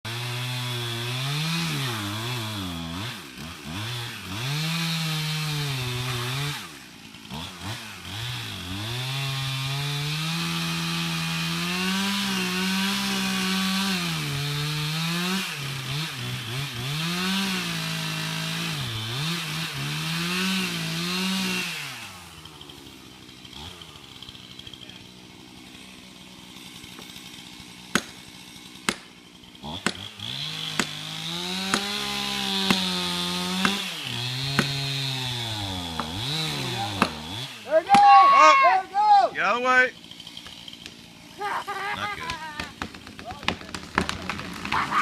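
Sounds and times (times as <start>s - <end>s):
chainsaw cutting wood: 0.0s - 45.0s.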